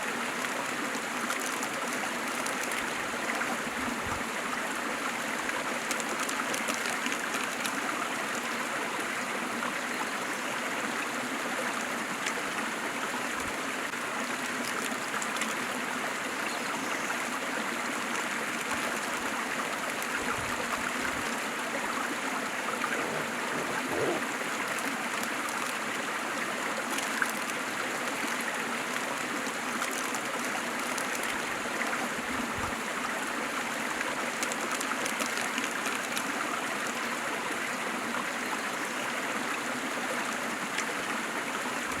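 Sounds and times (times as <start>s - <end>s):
waterfall rushing and splashing: 19.4s - 31.4s.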